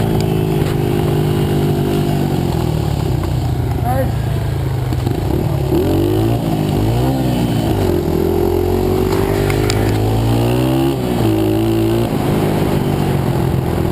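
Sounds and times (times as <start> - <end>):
small motorbike engine revving: 4.0 - 13.9.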